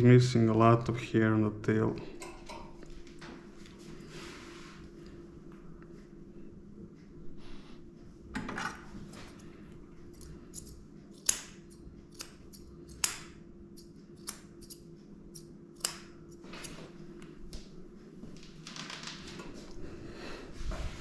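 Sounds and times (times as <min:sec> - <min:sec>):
faint steady hum: 0:00.0 - 0:21.0
scissors snipping fur: 0:10.1 - 0:16.8.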